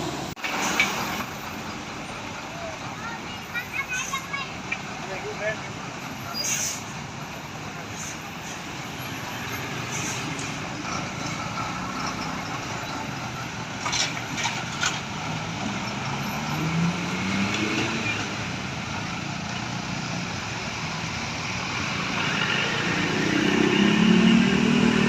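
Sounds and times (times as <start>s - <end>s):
road noise hiss: 0.0s - 25.0s
brief sharp hisses: 6.3s - 6.9s, 9.9s - 10.4s.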